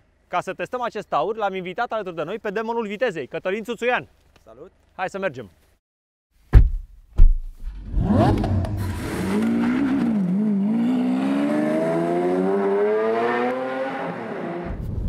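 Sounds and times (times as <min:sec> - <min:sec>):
car engine revving and accelerating: 0:07.8 - 0:14.8.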